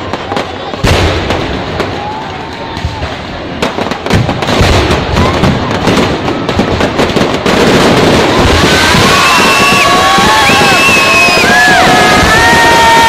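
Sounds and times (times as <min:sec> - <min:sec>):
fireworks crackling and banging: 0:00.0 - 0:13.0.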